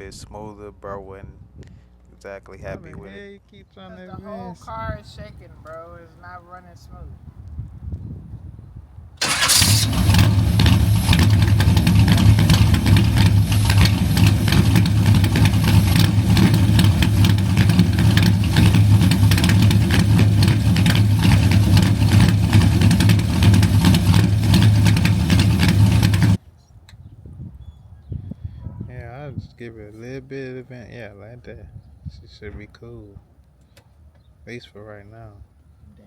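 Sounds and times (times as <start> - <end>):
car engine idling rough: 9.2 - 26.4.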